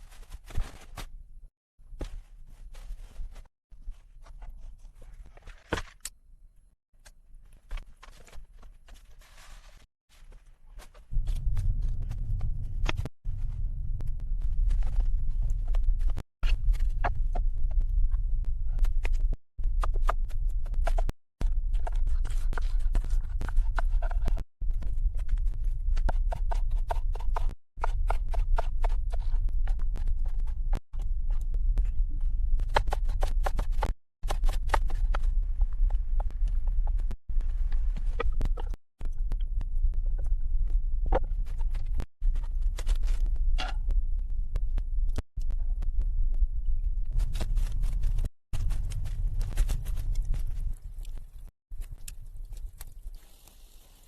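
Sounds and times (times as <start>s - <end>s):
low rumble: 11.1s - 18.9s, 35.2s - 51.4s.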